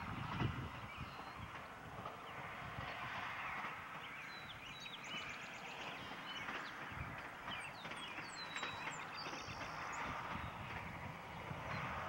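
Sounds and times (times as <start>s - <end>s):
birds singing: 0.2s - 12.0s.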